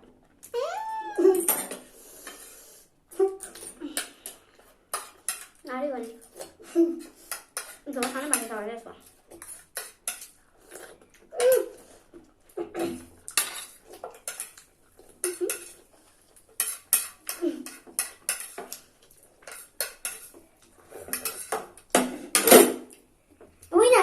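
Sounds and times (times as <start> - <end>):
cutlery clinking on plates: 3.4 - 5.6, 6.3 - 8.6, 9.3 - 23.0.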